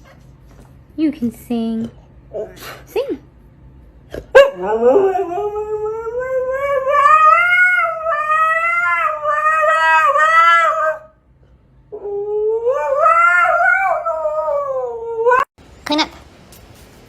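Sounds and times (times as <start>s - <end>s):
dog howling: 4.4s - 11.2s, 11.9s - 15.5s.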